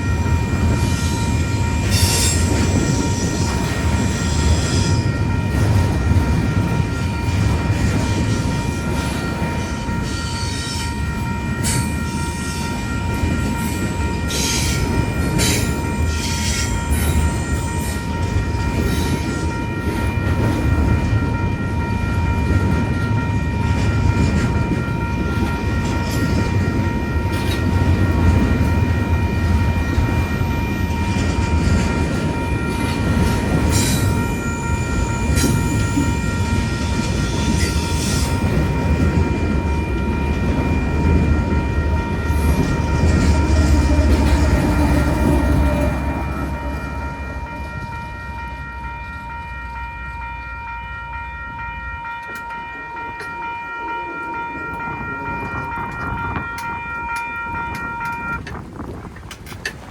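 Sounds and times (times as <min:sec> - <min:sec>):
train passing: 0:00.0 - 0:59.9
wind on microphone: 0:54.8 - 0:59.9.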